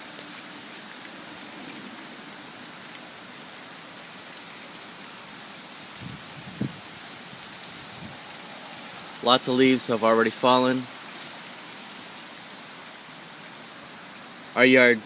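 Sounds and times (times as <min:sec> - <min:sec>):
light rain: 0:00.0 - 0:15.0
storm wind hissing: 0:05.0 - 0:13.5.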